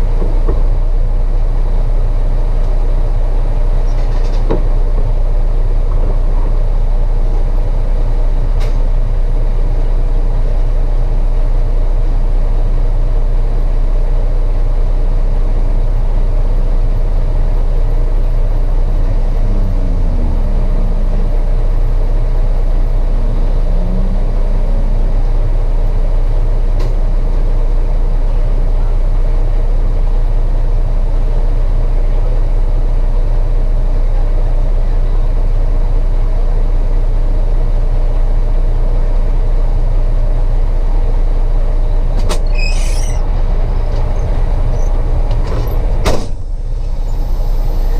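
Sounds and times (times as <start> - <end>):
truck engine running: 0.0 - 47.9
short pitch glides: 18.4 - 25.9.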